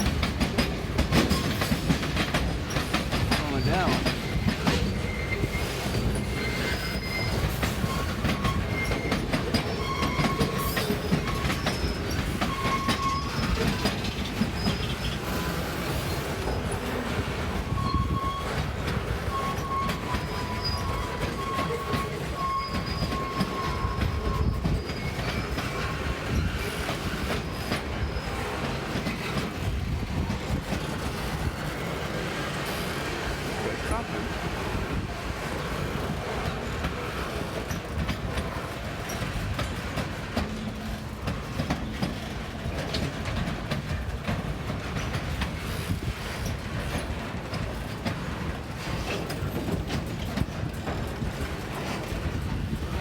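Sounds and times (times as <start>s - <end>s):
freight train cars rolling: 0.0s - 53.0s
wheels clattering over rails: 0.0s - 53.0s
high-pitched wheel squeals: 3.6s - 13.8s, 17.7s - 26.8s.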